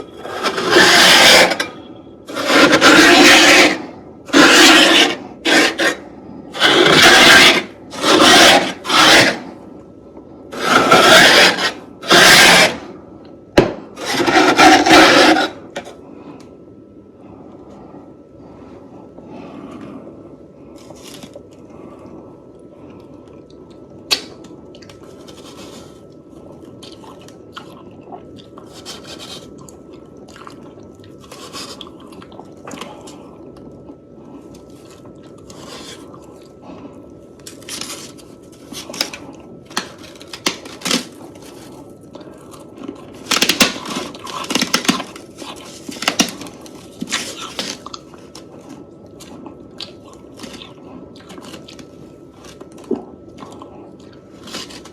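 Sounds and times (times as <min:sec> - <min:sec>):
chewing crunchy frost: 0:20.7 - 0:21.8, 0:24.4 - 0:54.9.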